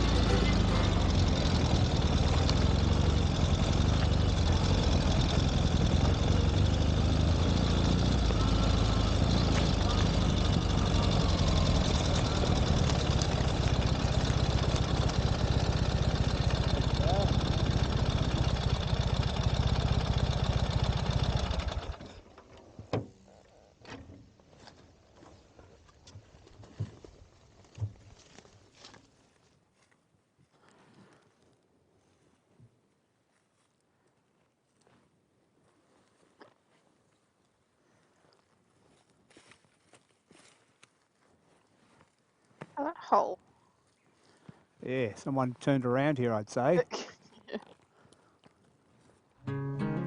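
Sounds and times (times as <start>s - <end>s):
motorcycle engine thrumming: 0.0s - 22.2s.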